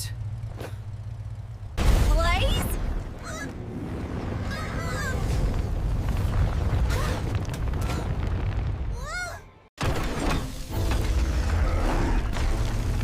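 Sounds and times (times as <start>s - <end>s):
crashes and booms: 1.8s - 9.1s.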